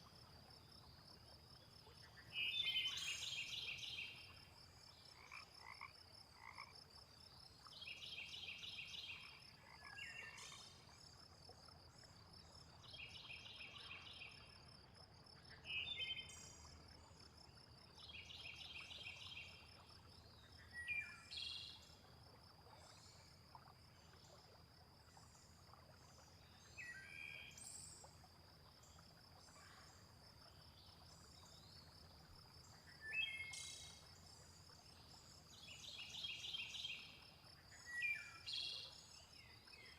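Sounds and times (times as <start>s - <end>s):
frogs croaking: 1.4s - 7.3s, 7.9s - 18.2s.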